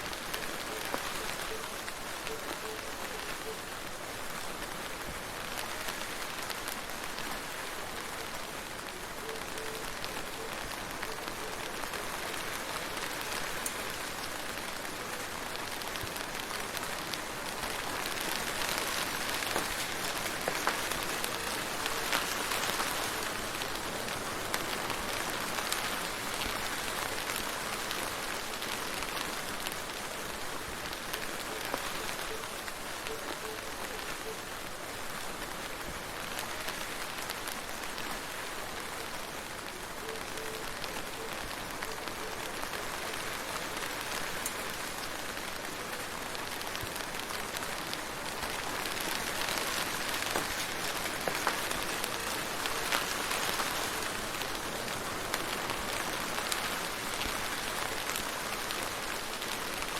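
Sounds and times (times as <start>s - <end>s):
rain falling: 0.0s - 59.9s
raindrops ticking on a surface: 0.0s - 59.9s.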